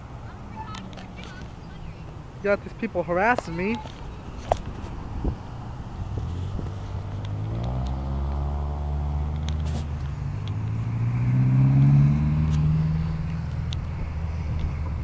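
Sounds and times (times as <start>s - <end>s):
car engine accelerating: 4.9s - 15.0s.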